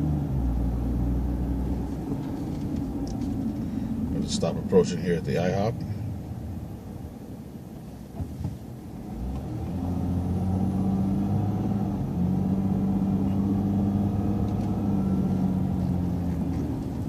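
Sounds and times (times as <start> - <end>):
bus engine pulling away: 0.0 - 4.4, 9.0 - 17.0.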